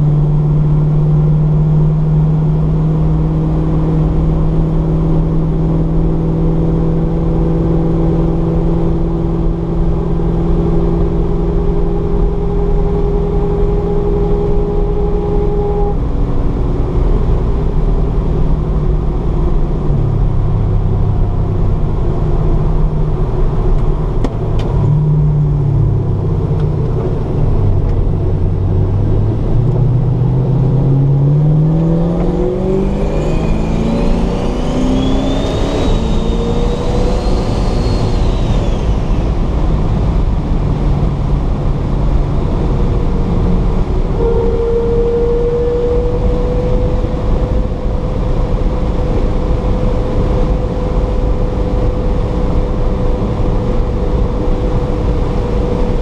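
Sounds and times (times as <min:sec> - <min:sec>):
turbocharged car engine: 0:00.0 - 0:56.0
faint rising whistle: 0:31.0 - 0:39.5, 0:44.0 - 0:47.8.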